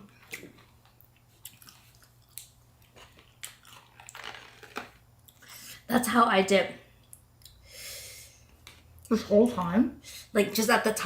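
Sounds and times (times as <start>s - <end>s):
chewing crunchy food: 0.1s - 5.4s.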